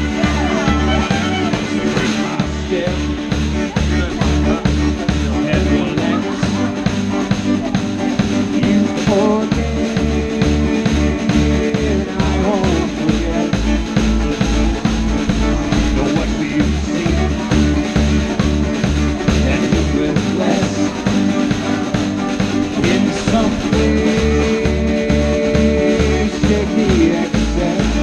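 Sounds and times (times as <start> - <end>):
bass guitar: 0.0 - 28.0
kick drum beat: 0.0 - 28.0
strummed acoustic guitars: 0.0 - 28.0.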